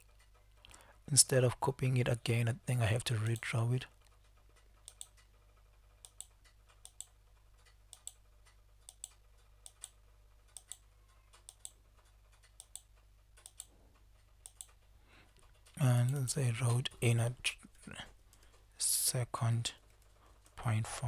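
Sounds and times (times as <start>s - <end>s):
faint electrical hum: 0.0s - 21.0s
computer mouse clicking: 3.2s - 5.3s, 6.0s - 13.8s, 14.4s - 14.8s.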